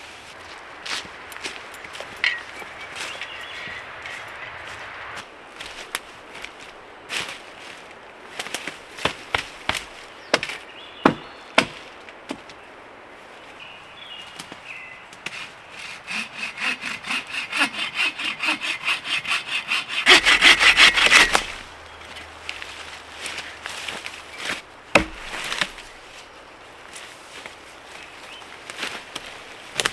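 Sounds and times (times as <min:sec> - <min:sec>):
wood snapping and knocking: 0:08.4 - 0:12.6, 0:20.1 - 0:21.7, 0:24.4 - 0:26.0, 0:29.2 - 0:29.9
hand saw cutting wood: 0:15.2 - 0:21.7, 0:25.0 - 0:25.9.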